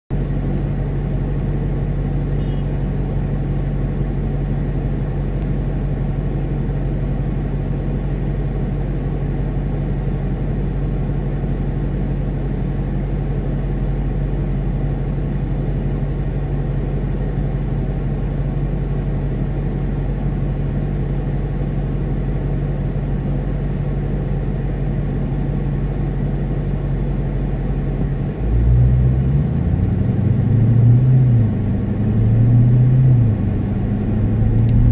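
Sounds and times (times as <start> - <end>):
car engine idling: 0.1 - 34.9
car pulling away: 28.1 - 34.9.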